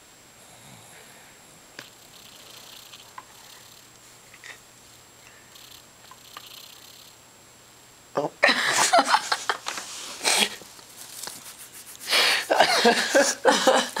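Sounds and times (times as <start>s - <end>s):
dog snoring loudly: 0.4s - 1.1s.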